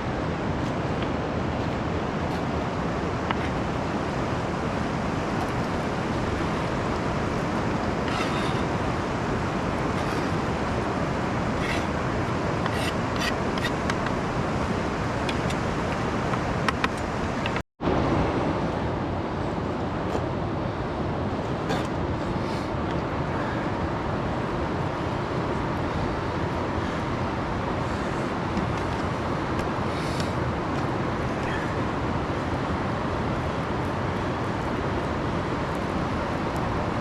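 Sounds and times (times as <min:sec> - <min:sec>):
river rapids rushing: 0:00.0 - 0:24.8.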